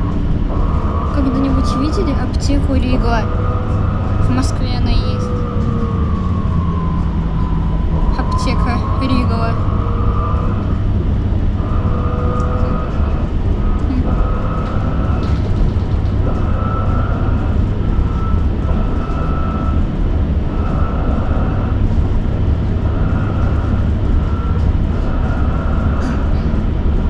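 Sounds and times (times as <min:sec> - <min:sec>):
low road rumble: 0:00.0 - 0:27.0.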